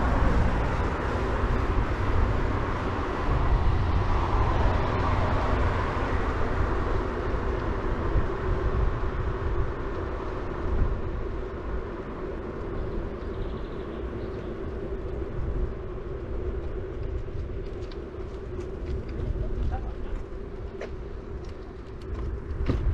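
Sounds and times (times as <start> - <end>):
passing vehicle noise: 0.0 - 22.9
tyre noise on road: 0.0 - 22.9
wind rumbling on microphone: 0.0 - 22.9.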